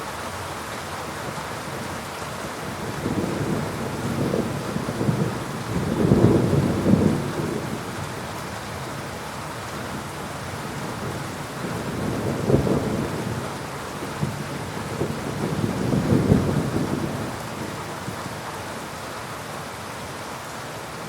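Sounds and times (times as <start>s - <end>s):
heavy rain: 0.0s - 21.0s
rumbling thunder: 2.6s - 8.2s, 9.9s - 18.2s.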